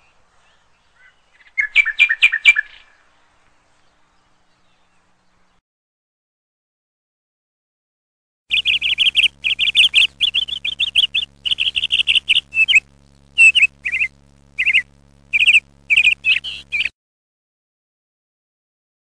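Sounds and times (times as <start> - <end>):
small bird chirping: 8.5 - 16.9.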